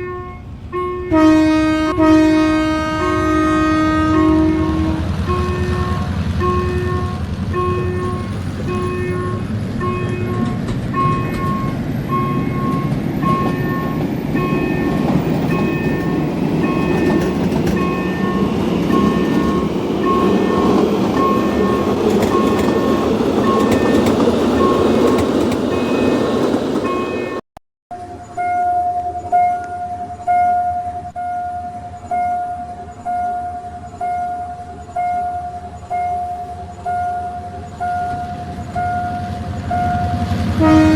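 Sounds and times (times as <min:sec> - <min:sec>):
train rumbling past: 0:00.0 - 0:27.4, 0:28.0 - 0:40.9
crossing bell decaying dings: 0:04.1 - 0:40.3
level crossing bells dinging: 0:05.3 - 0:27.4.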